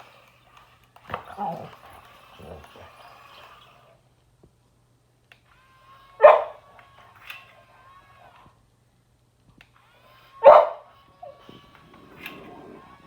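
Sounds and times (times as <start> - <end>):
dog barking: 6.2 - 6.6, 10.4 - 10.9
faint steady whine: 10.9 - 13.0.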